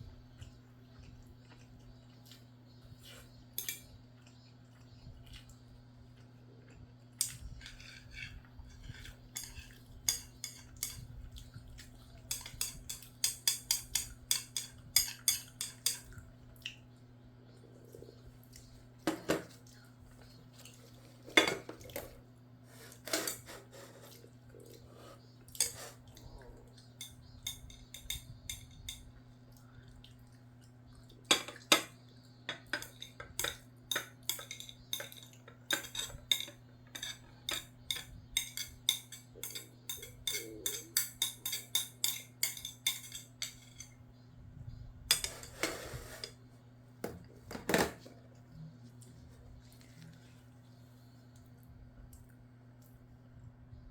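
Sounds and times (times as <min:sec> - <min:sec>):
steady low hum: 0:00.0 - 0:53.9
metal utensil clinking on bowl: 0:03.6 - 0:04.0, 0:07.2 - 0:11.1, 0:12.3 - 0:16.1, 0:27.0 - 0:29.1, 0:31.3 - 0:44.0, 0:45.1 - 0:46.3.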